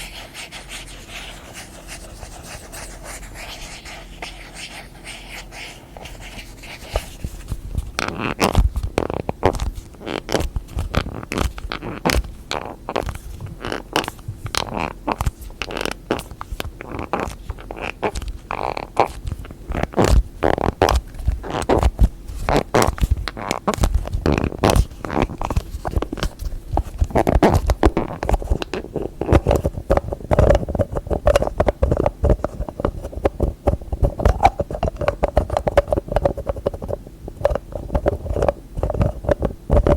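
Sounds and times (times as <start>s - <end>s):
soft rubbing: 0.0s - 8.0s
fast tapping on lids: 17.0s - 39.9s.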